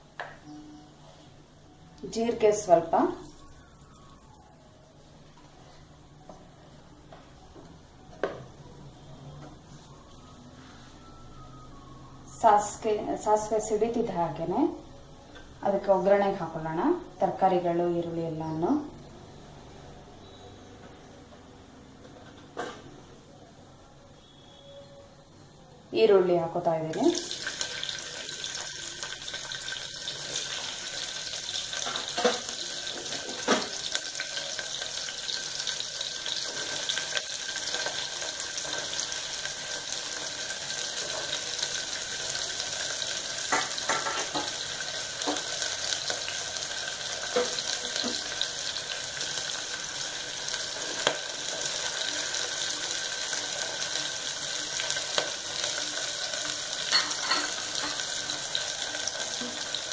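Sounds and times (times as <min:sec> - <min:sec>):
vegetables sizzling in hot oil: 0:02.0 - 0:04.3, 0:26.1 - 0:59.9
utensils clinking against pot: 0:31.8 - 0:33.8, 0:43.5 - 0:44.6, 0:56.8 - 0:58.4.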